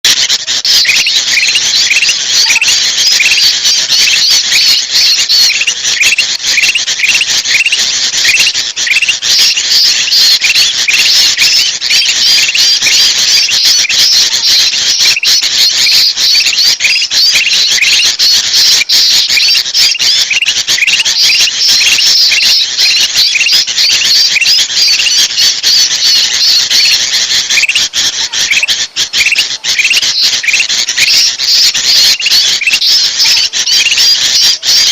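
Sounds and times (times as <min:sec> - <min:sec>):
bulbuls alarm chatter: 0:00.1 - 0:34.9
short upward bird chirps: 0:00.6 - 0:27.0.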